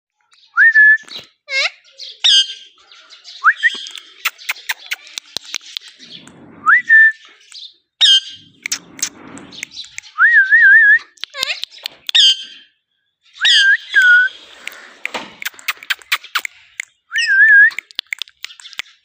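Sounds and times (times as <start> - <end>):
parakeet sharp clicks: 3.8 - 6.0, 11.2 - 12.2, 14.6 - 17.0, 17.7 - 19.0
parakeet whistles: 13.4 - 14.4.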